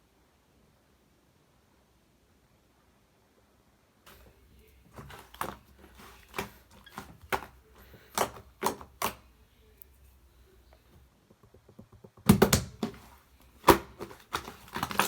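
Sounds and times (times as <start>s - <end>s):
slime squishing: 4.1s - 10.0s, 12.2s - 15.0s.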